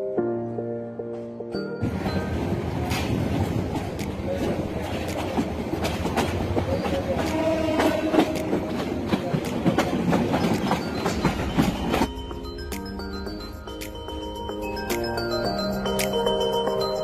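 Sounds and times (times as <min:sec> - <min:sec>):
train wheels clicking over rails: 0:01.8 - 0:12.2
train rumbling: 0:01.8 - 0:13.6.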